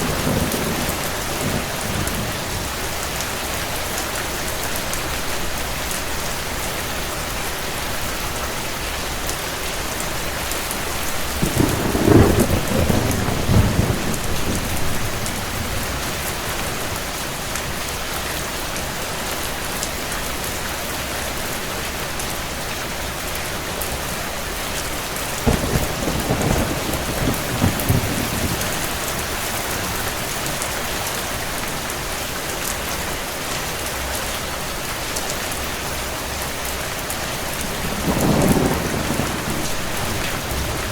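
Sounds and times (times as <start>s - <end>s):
low thunder rumbling: 0.0s - 3.2s, 11.3s - 17.5s, 25.3s - 30.7s, 37.4s - 40.9s
steady rain: 0.0s - 40.9s.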